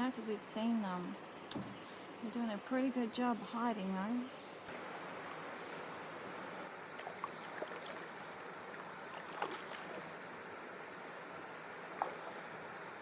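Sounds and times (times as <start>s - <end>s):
small water splashes and drips: 1.4s - 2.0s, 6.8s - 10.5s, 11.8s - 13.0s
river water rushing: 4.7s - 13.0s.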